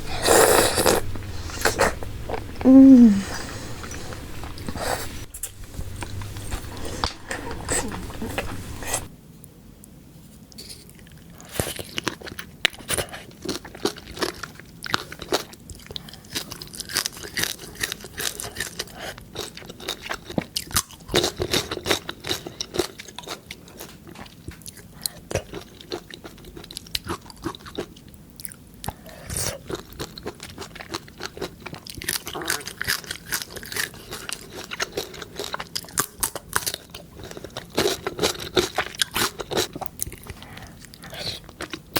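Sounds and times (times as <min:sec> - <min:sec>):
crunchy bites and chewing: 0:29.3 - 0:41.9.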